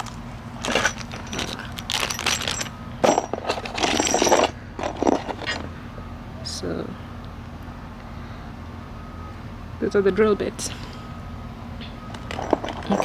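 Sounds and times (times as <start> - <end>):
nails and drill bits clinking: 0.0 - 5.7, 12.1 - 13.0.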